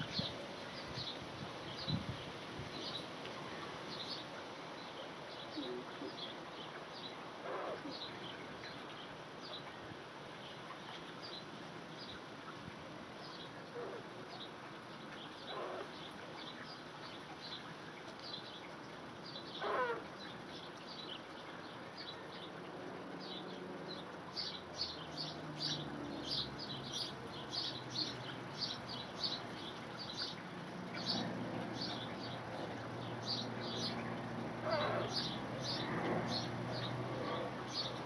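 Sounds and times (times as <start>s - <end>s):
birds chirping: 23.2s - 38.0s.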